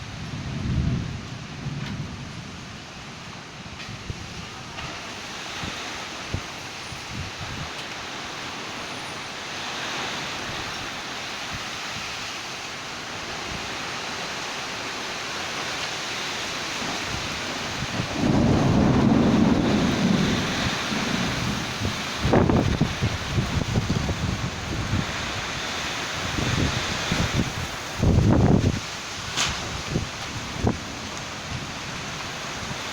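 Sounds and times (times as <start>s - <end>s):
thunder rumble: 0.0s - 6.5s, 16.8s - 32.9s
rain and wind hiss: 0.0s - 32.9s.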